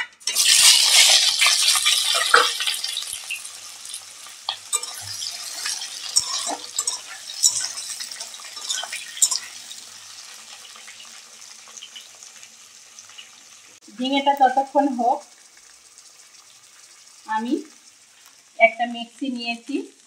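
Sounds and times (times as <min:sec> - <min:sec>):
vegetables sizzling in hot oil: 0:00.0 - 0:20.0
metal spatula scraping pan: 0:04.5 - 0:09.8.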